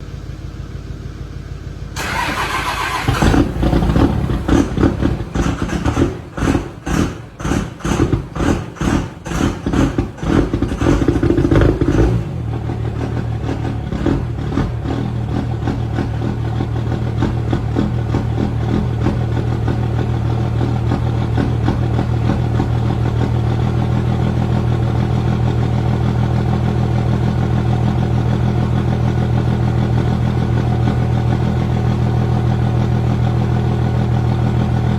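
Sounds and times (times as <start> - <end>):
engine idling: 0.0 - 34.9
engine starting: 2.0 - 11.3
engine revving: 2.0 - 23.8.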